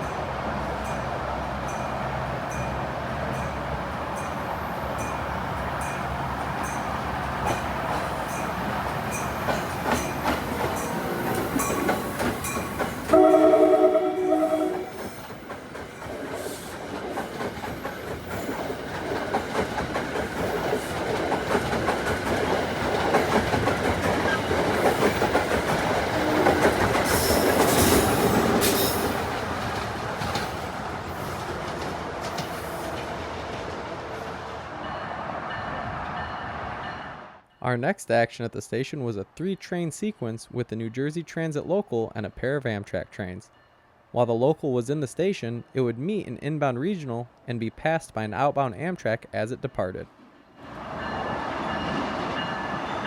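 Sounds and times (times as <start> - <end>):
train rumbling past: 0.0 - 37.6, 50.1 - 53.0
wheels clattering on rails: 1.6 - 13.6, 14.8 - 34.2
multi-note train horn: 13.1 - 15.2.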